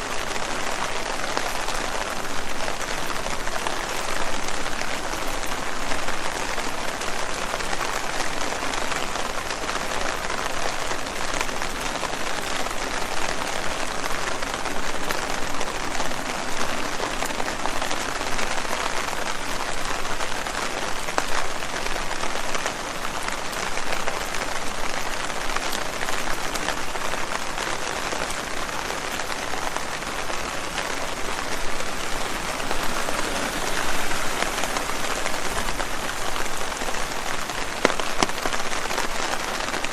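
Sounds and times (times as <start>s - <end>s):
rain pattering on leaves: 0.0s - 39.9s.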